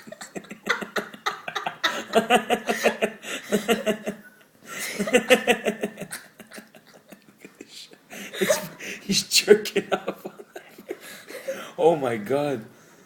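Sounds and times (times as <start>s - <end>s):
man laughing: 0.0s - 11.7s.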